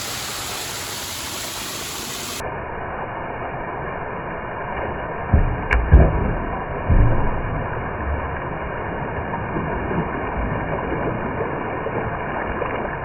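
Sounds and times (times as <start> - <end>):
waterfall rushing: 0.0 - 2.4.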